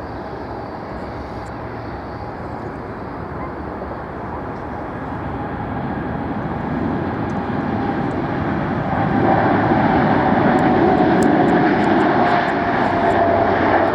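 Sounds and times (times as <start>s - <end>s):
jet engines on takeoff: 0.0s - 13.9s.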